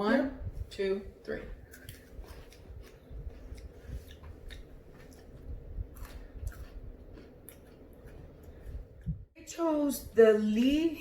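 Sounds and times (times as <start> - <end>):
crunching biscuit sticks: 1.7 - 8.8.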